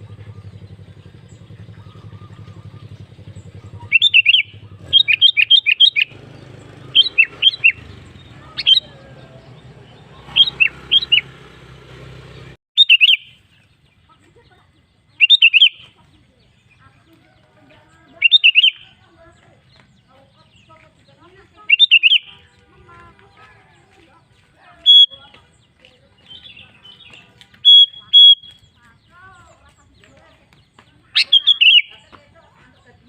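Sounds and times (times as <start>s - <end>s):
bulbul singing whistled notes: 0.0s - 11.4s, 12.8s - 13.8s, 15.1s - 16.0s, 18.0s - 19.0s, 21.5s - 22.7s, 24.8s - 25.6s, 26.2s - 32.4s.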